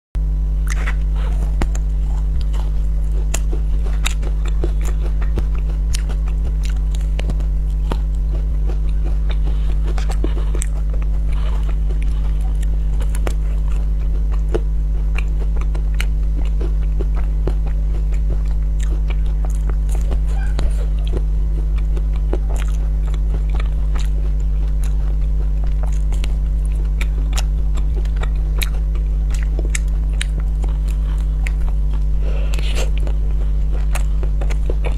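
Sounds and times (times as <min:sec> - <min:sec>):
crunchy chewing of ice cream bar: 0:00.2 - 0:34.9
steady low hum: 0:00.2 - 0:34.9.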